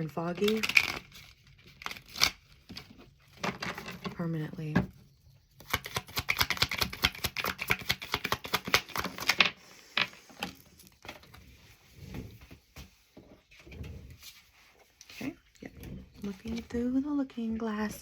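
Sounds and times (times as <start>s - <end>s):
cards being shuffled: 5.6s - 11.3s.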